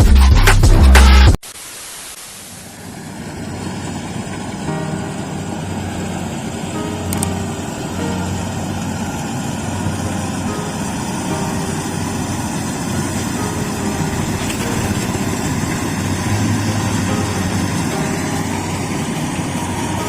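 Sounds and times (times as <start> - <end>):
combine harvester diesel engine: 2.7 - 20.0.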